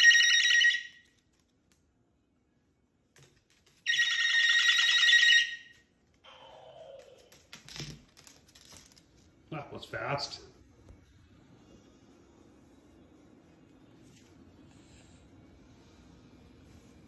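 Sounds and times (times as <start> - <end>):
electronic toy ringing tone: 3.9 - 5.6.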